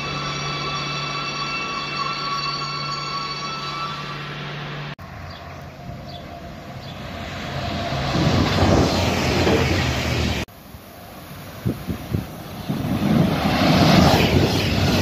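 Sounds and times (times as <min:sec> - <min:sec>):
diesel locomotive drone: 0:00.0 - 0:15.0
train wheels rushing on rails: 0:06.0 - 0:10.5, 0:11.4 - 0:15.0.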